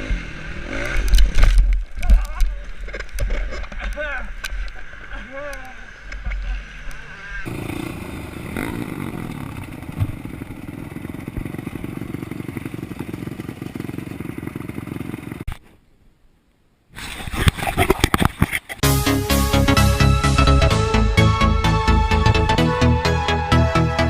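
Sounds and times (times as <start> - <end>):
dirt bike engine running: 0.0 - 15.6.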